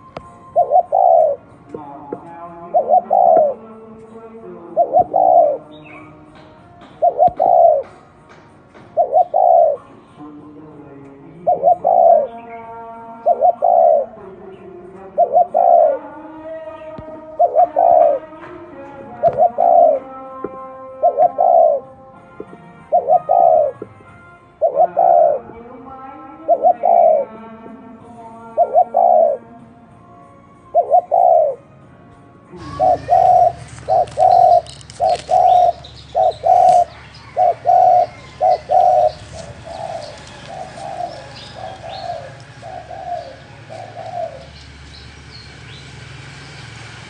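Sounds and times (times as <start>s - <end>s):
dove cooing: 0.0s - 1.5s, 2.6s - 3.7s, 4.6s - 10.0s, 11.3s - 12.5s, 13.1s - 14.3s, 14.9s - 18.4s, 19.0s - 25.6s, 26.3s - 27.4s, 28.5s - 29.6s, 30.7s - 31.6s, 32.6s - 45.8s.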